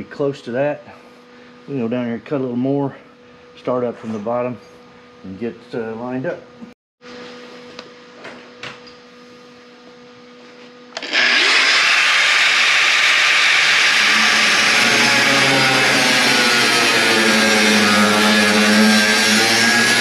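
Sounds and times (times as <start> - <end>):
power tool cutting sheet metal: 11.0 - 20.0.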